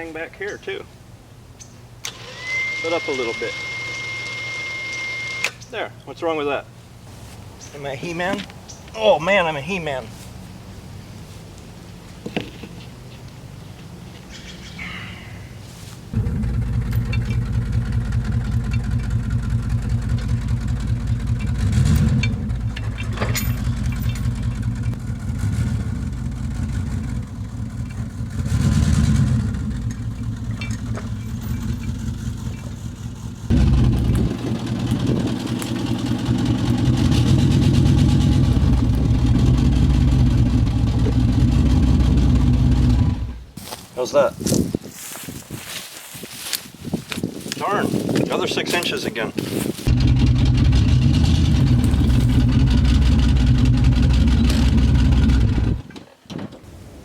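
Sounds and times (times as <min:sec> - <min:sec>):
vehicle engine running and revving: 0:16.2 - 0:22.9, 0:23.5 - 0:43.4, 0:49.9 - 0:55.8.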